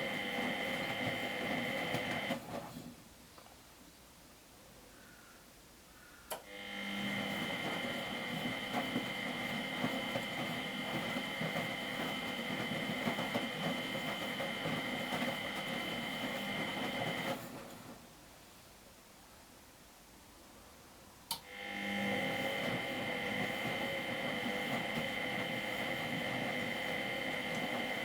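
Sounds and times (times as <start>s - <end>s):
washing machine whining and churning: 0.0s - 2.9s, 6.5s - 18.1s, 21.4s - 28.0s.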